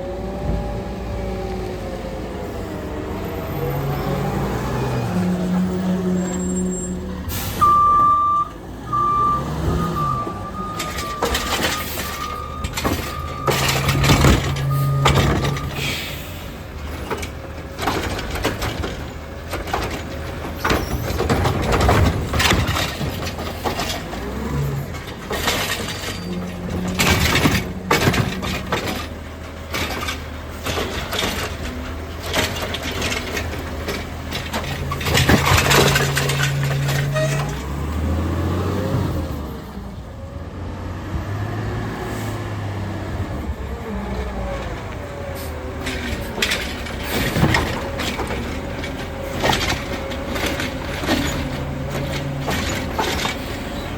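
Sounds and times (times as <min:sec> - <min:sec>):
garbage truck engine running: 0:00.1 - 0:53.9
backup beeper: 0:07.6 - 0:13.7
carts and trash clattering: 0:09.6 - 0:39.8, 0:42.7 - 0:53.9.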